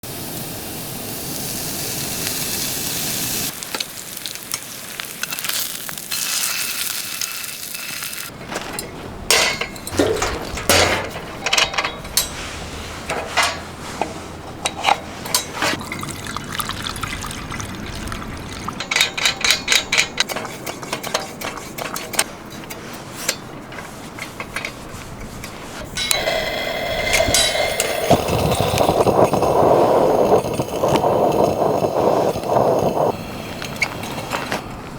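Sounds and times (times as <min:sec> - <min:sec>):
steak sizzling in a frying pan: 0:00.1 - 0:08.3
sharp crackles and pops: 0:00.2 - 0:08.3, 0:26.1 - 0:34.9.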